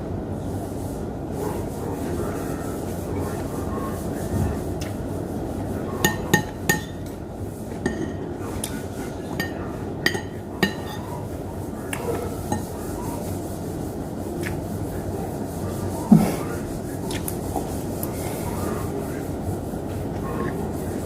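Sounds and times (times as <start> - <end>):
low background noise: 0.0 - 21.0
cutlery clinking on a plate: 6.0 - 7.0, 7.8 - 8.3, 9.3 - 11.1.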